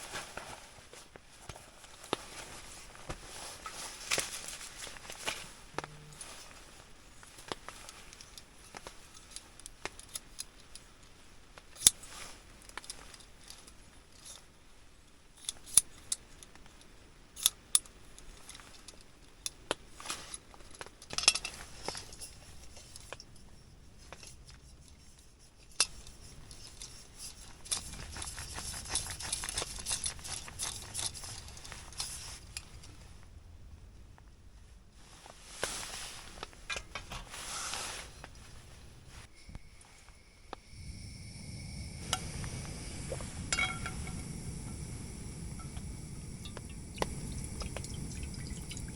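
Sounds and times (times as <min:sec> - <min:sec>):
cooking gear clicking: 0:40.0 - 0:48.9.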